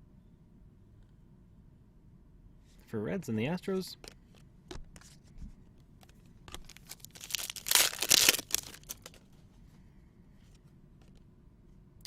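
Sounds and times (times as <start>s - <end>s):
wrapper crinkling: 6.0s - 9.4s
wrapper tearing: 6.5s - 9.3s.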